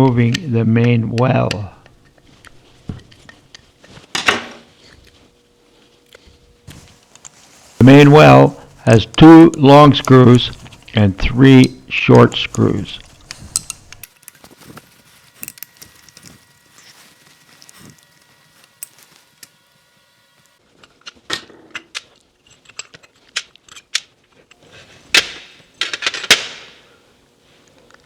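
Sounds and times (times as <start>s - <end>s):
small metal parts clinking: 11.6s - 18.2s.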